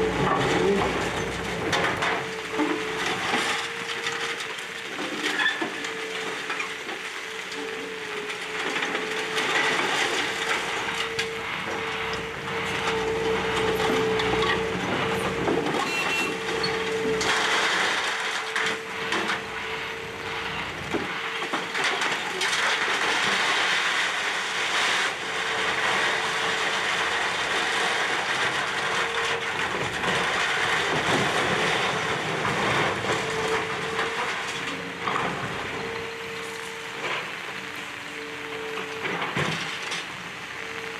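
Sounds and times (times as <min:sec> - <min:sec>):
steady whine: 0:00.0 - 0:22.1, 0:32.8 - 0:40.9
debris crunching and cracking: 0:00.0 - 0:40.9
excavator engine and hydraulics: 0:00.0 - 0:40.9.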